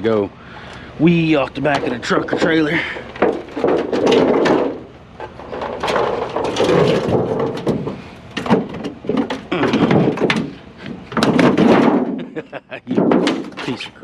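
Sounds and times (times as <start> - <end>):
metal sheet bending and scraping: 1.6 - 12.3
sharp knocks: 1.7 - 13.8.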